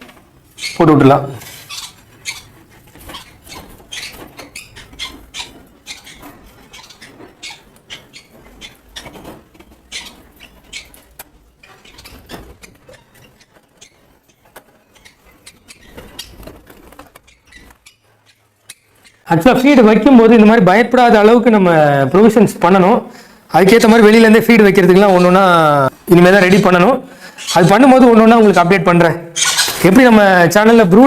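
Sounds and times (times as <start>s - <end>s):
tapping and scraping in feed pots: 0.0s - 19.3s.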